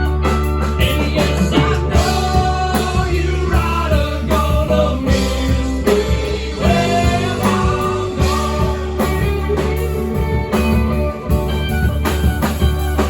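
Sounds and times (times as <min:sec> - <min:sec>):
bass guitar: 0:00.0 - 0:13.0
drums: 0:00.0 - 0:13.0
lead guitar: 0:00.0 - 0:13.0.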